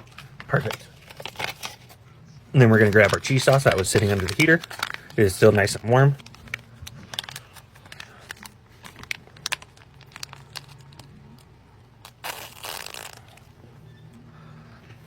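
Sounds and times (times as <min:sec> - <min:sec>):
plastic pouch crinkling: 0:00.0 - 0:02.0, 0:02.6 - 0:13.5
pouch tearing open: 0:02.8 - 0:05.2, 0:12.0 - 0:13.5.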